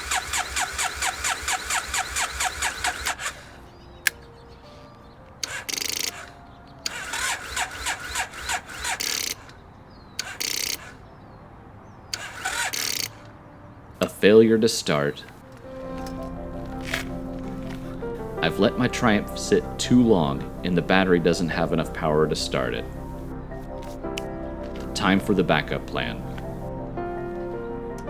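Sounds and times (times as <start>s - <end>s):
motorcycle starter cranking engine: 0.0s - 4.5s, 5.4s - 9.6s, 10.2s - 11.1s, 12.2s - 13.3s.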